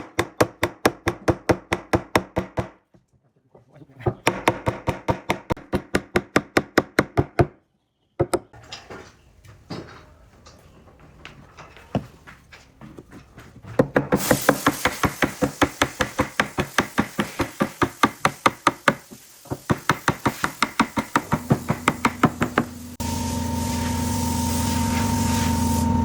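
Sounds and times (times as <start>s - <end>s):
power tool humming: 21.0s - 26.0s.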